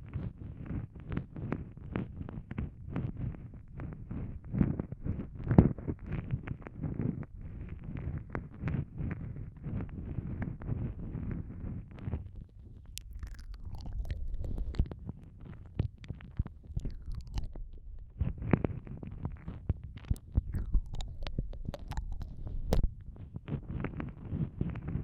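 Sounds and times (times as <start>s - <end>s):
wet mouth clicks and smacks: 12.8s - 23.2s.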